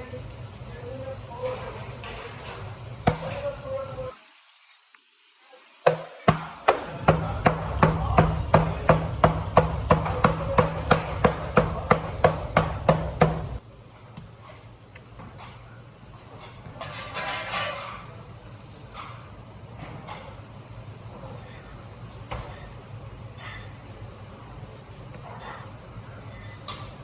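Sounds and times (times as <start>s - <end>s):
sharp knocks on hard surface: 5.9s - 13.6s.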